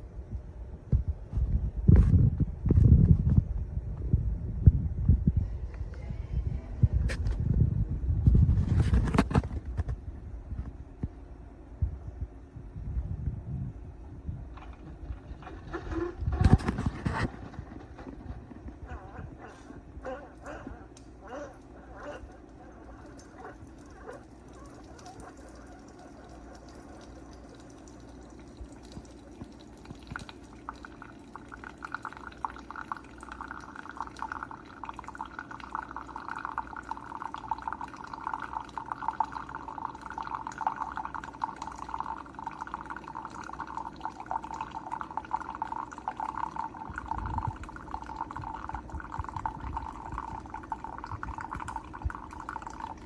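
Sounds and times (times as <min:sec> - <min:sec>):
coffee maker humming: 0:14.5 - 0:53.0
coffee pouring into cup: 0:14.6 - 0:18.8, 0:21.6 - 0:53.0.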